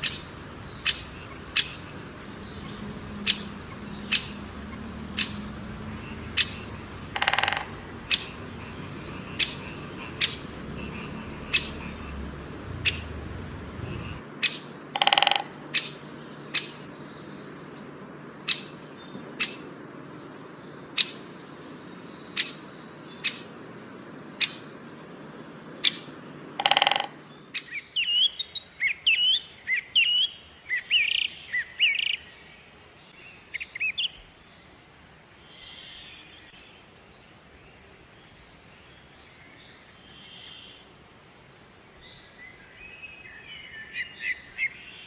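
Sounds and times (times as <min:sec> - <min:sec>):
bird chip notes: 0:00.0 - 0:14.2, 0:15.0 - 0:15.9, 0:26.6 - 0:27.2
bird warbling song: 0:00.0 - 0:19.7, 0:20.4 - 0:36.8
low background noise: 0:00.0 - 0:45.0.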